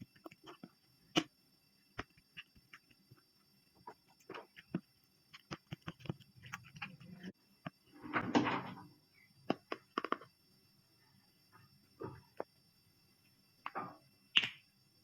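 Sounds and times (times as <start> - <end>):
clicks and taps of handled objects: 1.9 - 7.8, 9.5 - 10.3.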